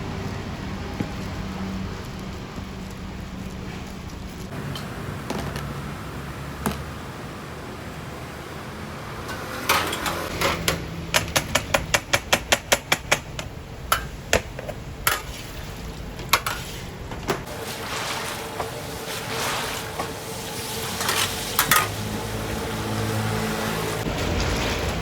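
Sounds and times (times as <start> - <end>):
metal utensil clinking on cookware: 21.0 - 22.0.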